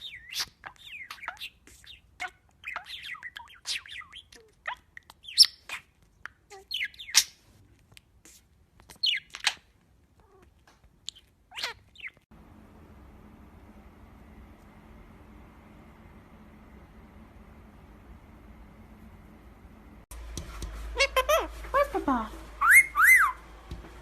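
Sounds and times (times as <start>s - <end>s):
parrots chirping and squawking: 0.0s - 7.4s, 8.9s - 12.2s, 20.9s - 22.0s, 22.6s - 23.4s.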